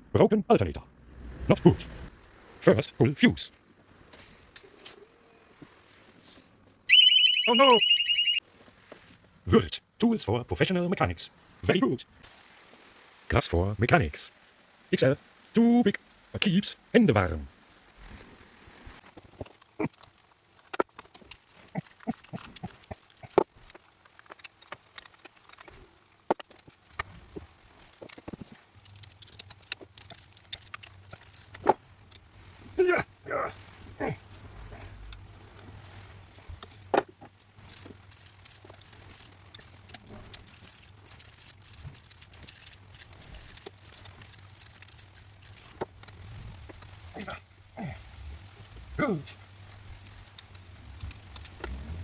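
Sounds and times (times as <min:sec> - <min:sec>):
metal tools clinking and rattling: 0:19.0 - 0:32.4, 0:33.6 - 0:47.4, 0:48.4 - 0:52.0.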